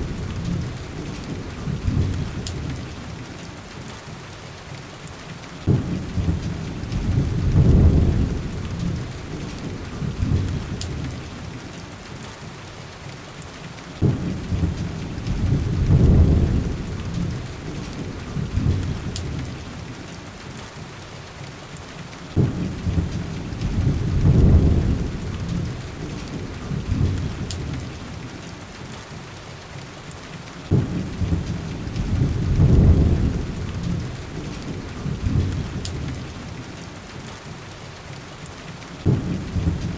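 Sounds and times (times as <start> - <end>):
thunder cracking and rumbling: 0.0 - 3.2, 5.6 - 11.7, 14.0 - 20.0, 22.3 - 28.4, 30.7 - 36.6, 39.0 - 39.9
heavy rain on window glass: 0.0 - 39.9.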